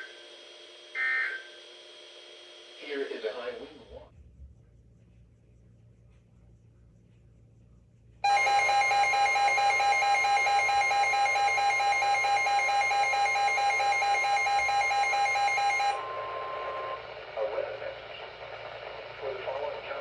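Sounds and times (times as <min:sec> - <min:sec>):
weather radio alert alarm: 0:08.2 - 0:19.2.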